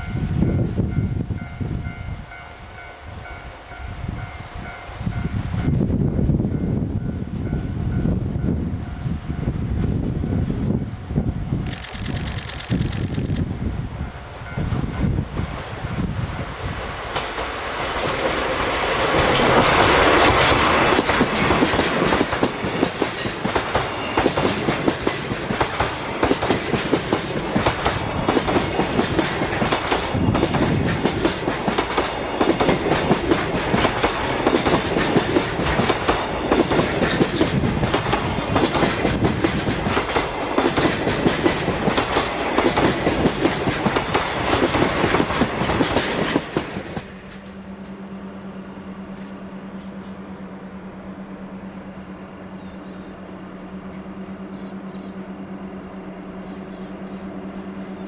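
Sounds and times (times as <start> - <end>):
train wheels clattering over rail joints: 16.8 - 47.9.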